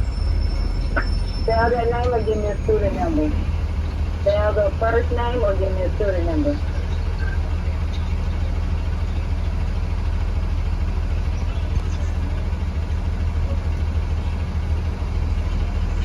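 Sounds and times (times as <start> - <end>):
bus engine idling: 0.0 - 16.0.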